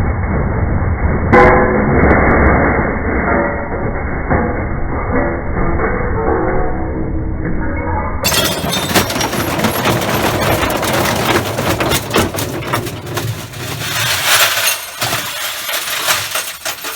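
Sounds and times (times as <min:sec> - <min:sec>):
glass shattering and clinking: 0:08.2 - 0:16.9
brick knocking in washing machine: 0:08.3 - 0:16.9.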